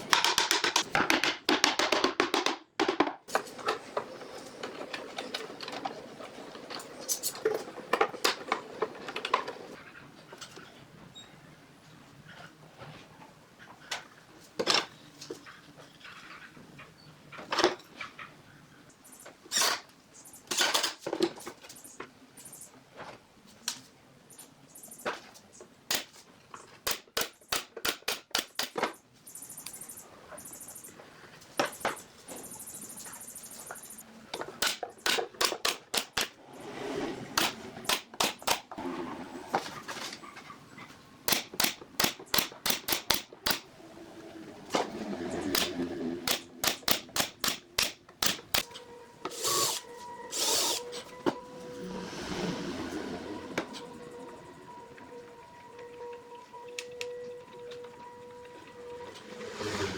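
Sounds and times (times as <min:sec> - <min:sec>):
woodworking taps and knocks: 0:00.1 - 0:03.3.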